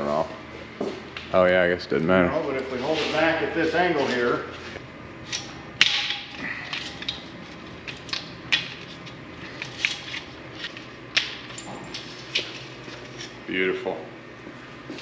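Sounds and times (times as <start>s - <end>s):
parts and tools clicking: 5.3s - 12.5s.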